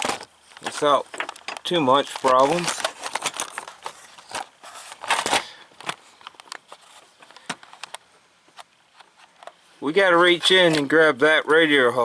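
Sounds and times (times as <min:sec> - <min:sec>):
camera handling clicks and rustling: 0:00.0 - 0:09.6.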